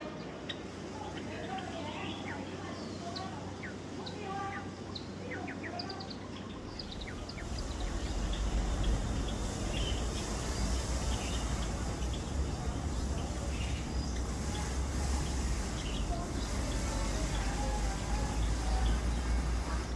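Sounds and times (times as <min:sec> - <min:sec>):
small birds chirping: 0:00.4 - 0:19.9
low background rumble: 0:06.5 - 0:19.9.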